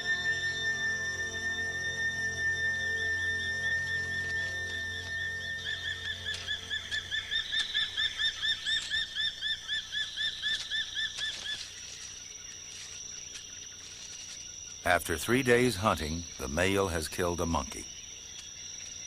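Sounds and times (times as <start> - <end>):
steady high-pitched whine: 0.0 - 19.0.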